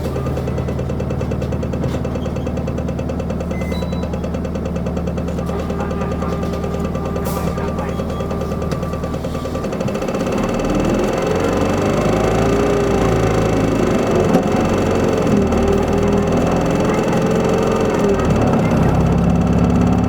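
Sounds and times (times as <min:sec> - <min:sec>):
diesel bus engine pulling away: 0:00.0 - 0:20.0.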